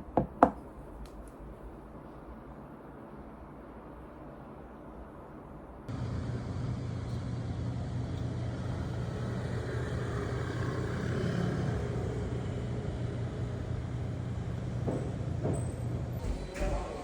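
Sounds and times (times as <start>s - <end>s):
low vehicle rumble: 5.9s - 16.5s.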